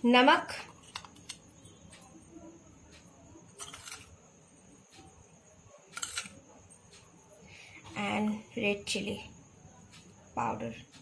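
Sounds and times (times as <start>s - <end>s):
spoon scraping in container: 3.6s - 4.2s.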